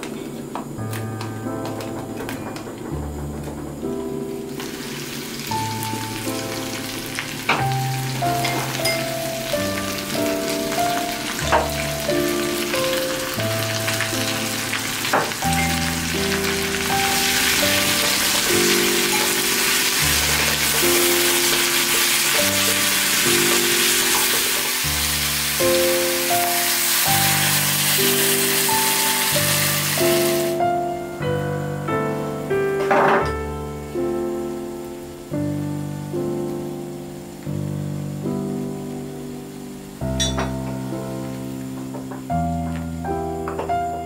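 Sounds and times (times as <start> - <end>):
background music: 0.0 - 44.0
vegetables sizzling in oil: 4.4 - 30.9.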